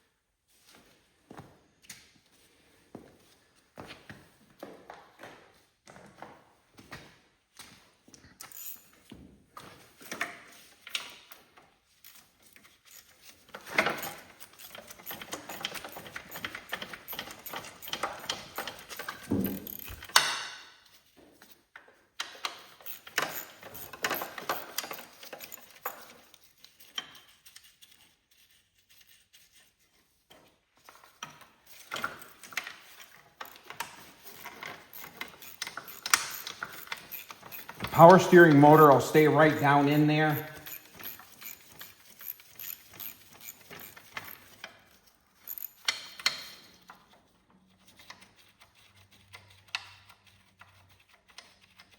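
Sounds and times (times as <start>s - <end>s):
metallic clinks of tools: 13.8s - 20.4s, 22.6s - 26.1s, 31.8s - 44.6s, 45.4s - 46.6s
ratchet clicking: 13.9s - 20.4s, 22.2s - 26.1s, 31.7s - 38.9s, 39.5s - 46.8s.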